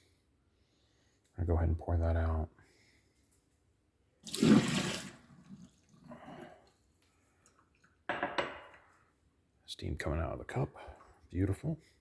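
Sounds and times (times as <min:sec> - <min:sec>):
water splashing from a mug: 0:04.2 - 0:06.7.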